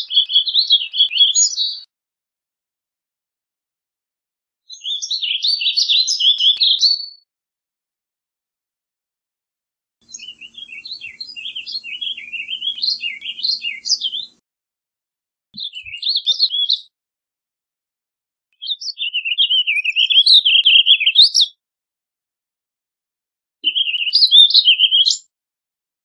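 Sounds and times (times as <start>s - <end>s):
bird singing warbled phrases: 0.0s - 1.9s, 4.7s - 7.3s, 10.0s - 14.4s, 15.6s - 16.9s, 18.6s - 21.6s, 23.6s - 25.3s.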